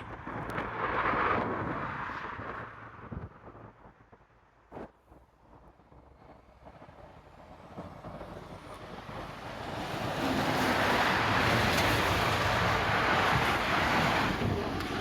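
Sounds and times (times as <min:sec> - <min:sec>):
vehicle rumble passing by: 0:05.8 - 0:15.0.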